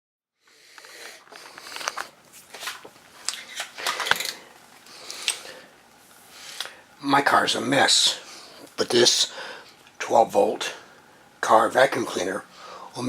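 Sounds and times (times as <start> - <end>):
rustling: 0.7 - 6.6.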